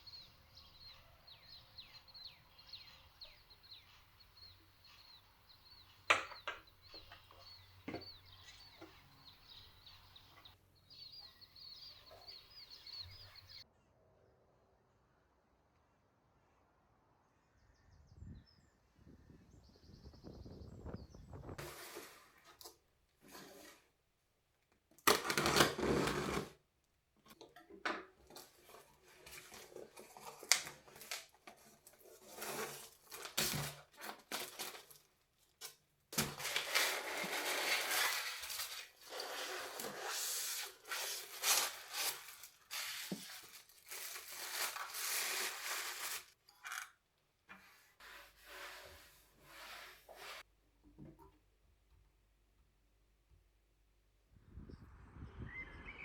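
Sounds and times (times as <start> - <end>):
packaging rustling and tearing: 28.3 - 46.4.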